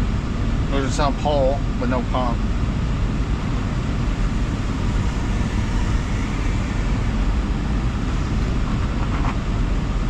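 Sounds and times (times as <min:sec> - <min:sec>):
low rumble: 0:02.5 - 0:09.9.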